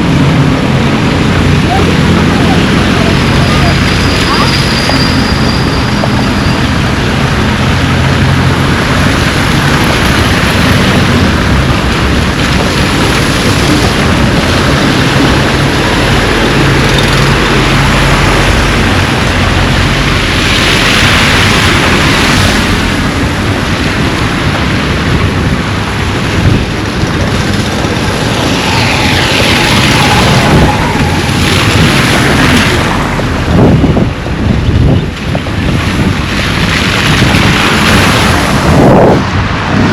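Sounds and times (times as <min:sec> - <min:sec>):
flowing floodwater: 0:00.0 - 0:39.9
wind buffeting microphone: 0:00.0 - 0:39.9.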